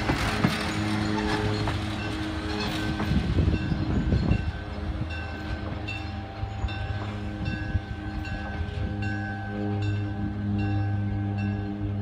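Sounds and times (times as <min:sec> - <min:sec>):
train wheels clacking: 0:00.0 - 0:07.4
train rumbling: 0:00.0 - 0:12.0.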